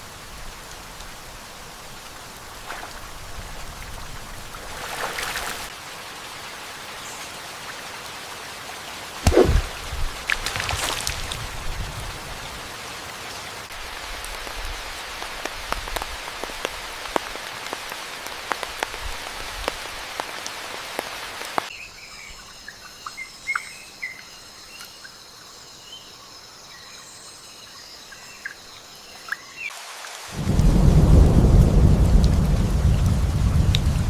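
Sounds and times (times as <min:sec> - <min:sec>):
rain with drops ticking: 0:00.0 - 0:21.7, 0:29.7 - 0:34.0.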